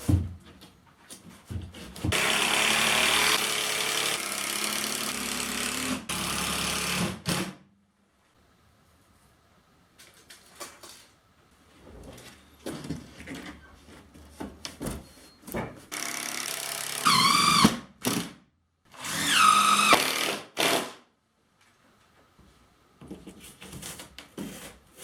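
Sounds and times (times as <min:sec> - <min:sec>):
power drill whining: 0:02.2 - 0:07.0, 0:16.0 - 0:17.7, 0:19.0 - 0:20.8.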